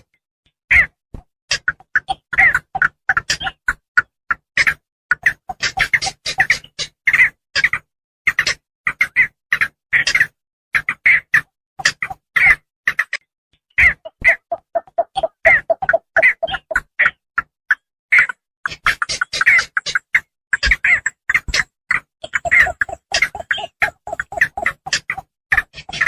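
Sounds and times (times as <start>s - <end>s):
herons harsh croaking calls: 13.8s - 16.9s, 22.2s - 26.0s.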